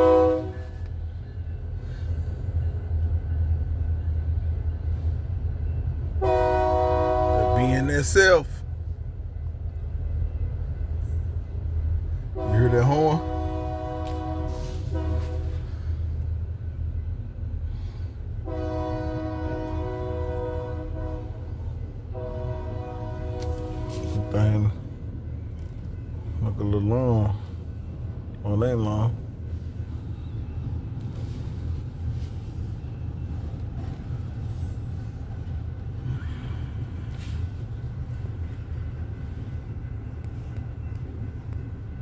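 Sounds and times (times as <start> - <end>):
locomotive air horn: 0.0 - 1.0, 6.2 - 8.4, 12.3 - 16.0, 18.4 - 24.8, 36.1 - 37.6
train rumbling: 0.0 - 42.0.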